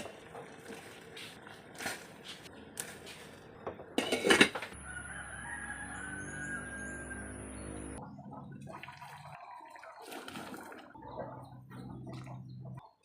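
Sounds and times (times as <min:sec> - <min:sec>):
rooster crowing: 0:04.8 - 0:07.7.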